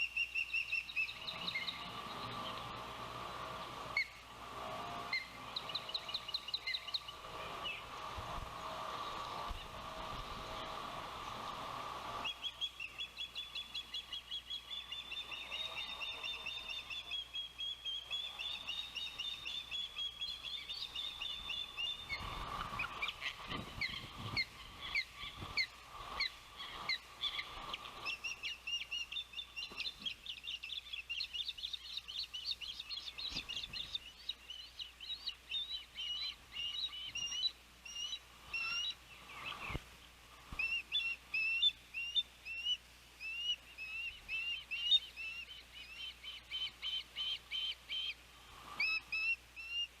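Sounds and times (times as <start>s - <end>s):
ospreys whistled chirps: 12.2s - 39.8s, 40.6s - 48.2s, 48.8s - 50.0s.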